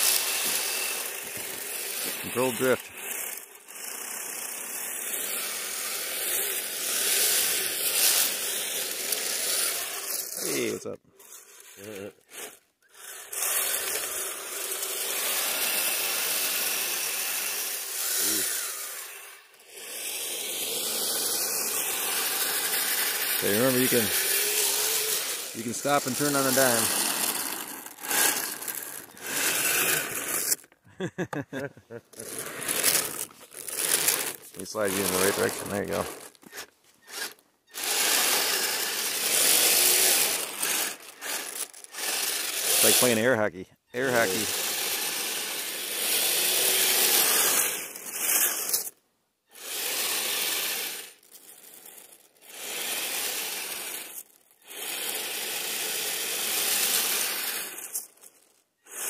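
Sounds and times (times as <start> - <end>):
motor whine: 0.0 - 10.6, 12.3 - 30.7, 32.2 - 43.0
rc vehicle churning snow: 0.0 - 59.0.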